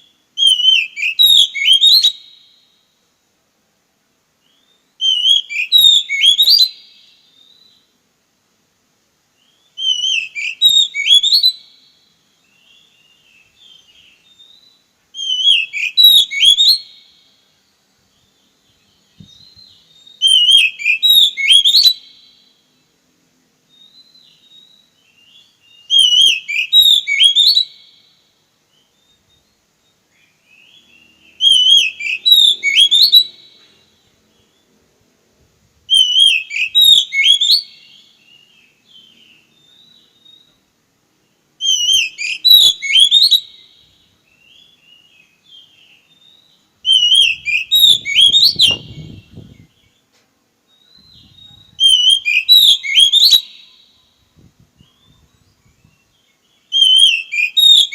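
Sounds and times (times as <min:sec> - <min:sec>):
bird singing whistled phrase: 0:00.0 - 0:02.2, 0:04.5 - 0:07.8, 0:09.4 - 0:11.6, 0:12.6 - 0:16.9, 0:18.2 - 0:22.2, 0:23.7 - 0:27.9, 0:30.5 - 0:33.7, 0:35.9 - 0:40.6, 0:41.6 - 0:50.0, 0:50.7 - 0:54.2, 0:54.8 - 0:57.9.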